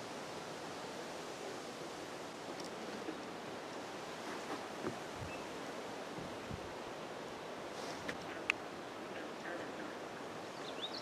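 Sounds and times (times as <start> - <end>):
rushing outdoor background noise: 0.0 - 11.0
faint rustles and ticks: 2.2 - 3.4.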